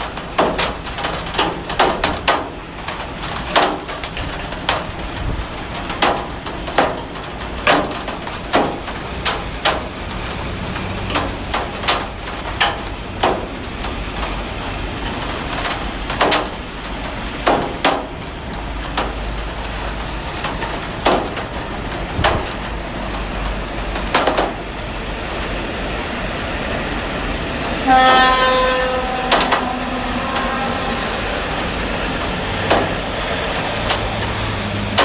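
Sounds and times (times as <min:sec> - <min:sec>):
heavy rain falling: 0:00.0 - 0:35.0.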